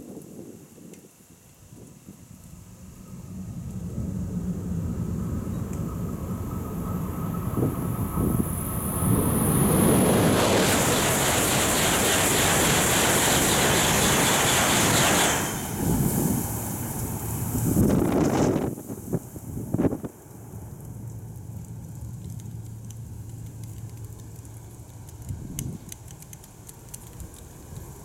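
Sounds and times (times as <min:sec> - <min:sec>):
high-speed train passing: 0:02.4 - 0:21.5
high whine falling in pitch: 0:02.7 - 0:18.7.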